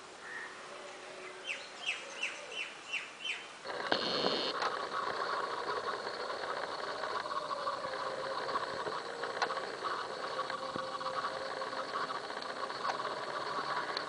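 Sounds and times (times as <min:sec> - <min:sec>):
small bird chirping: 0:01.4 - 0:14.0
motor hum: 0:03.6 - 0:14.0.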